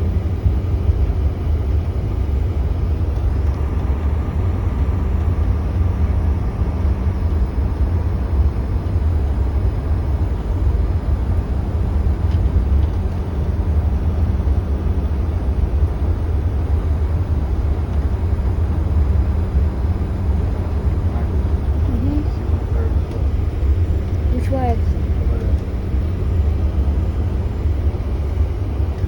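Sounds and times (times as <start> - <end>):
jet cabin rumble: 0.0 - 29.0.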